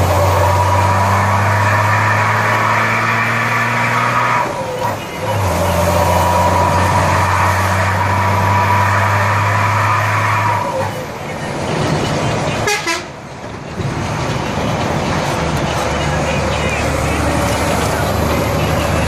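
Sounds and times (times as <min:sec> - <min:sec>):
truck engine running: 0:10.4 - 0:19.0.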